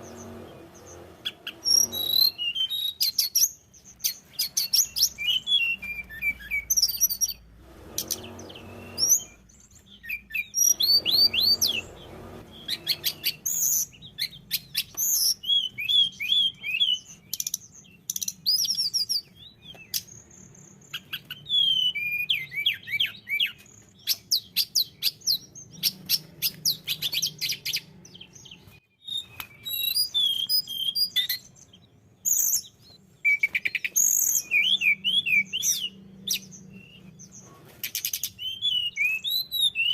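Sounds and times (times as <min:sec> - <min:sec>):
dull rushing noise: 0:00.0 - 0:02.6, 0:04.8 - 0:09.8, 0:10.5 - 0:14.4
songbird singing: 0:00.0 - 0:39.9.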